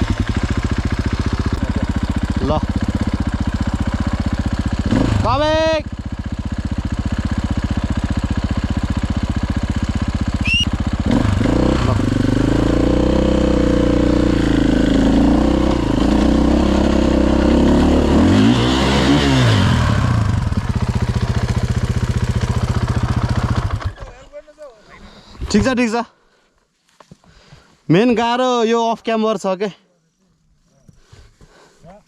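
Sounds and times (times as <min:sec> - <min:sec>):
dirt bike engine revving: 0:00.0 - 0:24.0
high rising squeal: 0:10.4 - 0:10.7.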